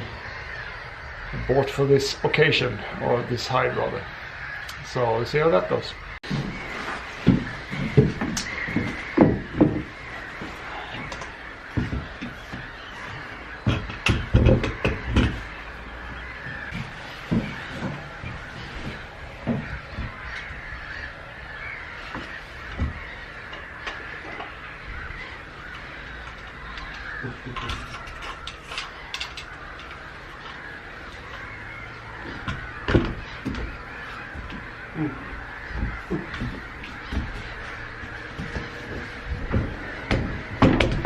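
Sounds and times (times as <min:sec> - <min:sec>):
gulls calling harshly: 0:00.0 - 0:41.0
close knocks and thumps: 0:07.2 - 0:10.1, 0:13.6 - 0:15.6, 0:32.2 - 0:34.7, 0:35.6 - 0:41.0.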